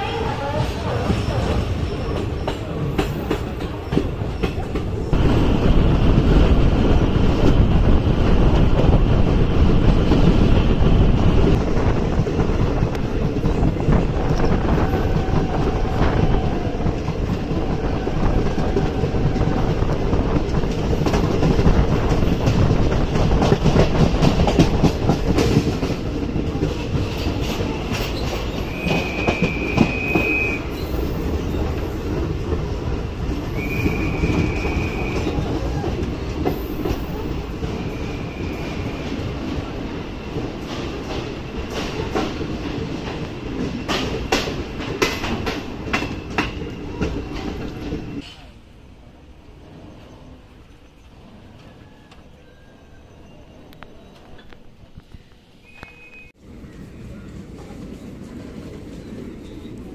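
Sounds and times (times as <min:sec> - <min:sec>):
train wheels clattering over rail joints: 0:01.0 - 0:32.8, 0:40.2 - 0:48.5.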